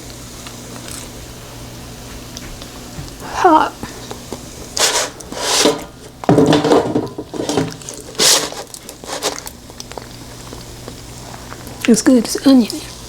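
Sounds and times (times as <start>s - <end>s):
muffled chewing: 0.1s - 1.2s, 3.8s - 5.4s, 8.5s - 13.0s.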